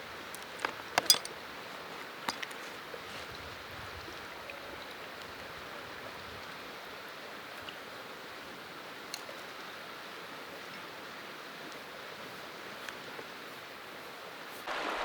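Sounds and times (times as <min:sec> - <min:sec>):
river rushing: 0:14.6 - 0:15.0.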